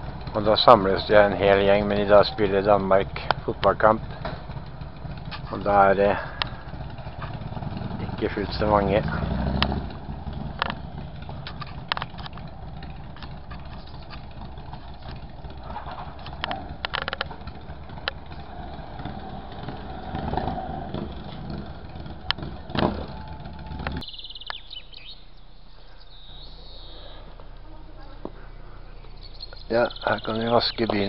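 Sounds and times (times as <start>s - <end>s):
motorcycle engines rumbling: 0.0s - 31.0s
scattered clicks: 9.5s - 18.4s, 23.7s - 24.6s
high chirps: 23.1s - 27.4s, 28.9s - 31.0s.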